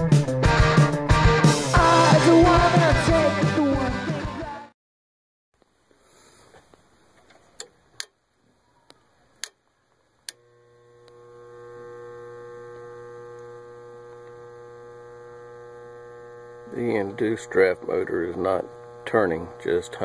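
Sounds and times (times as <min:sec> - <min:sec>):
electrical motor hum: 0:09.3 - 0:20.0.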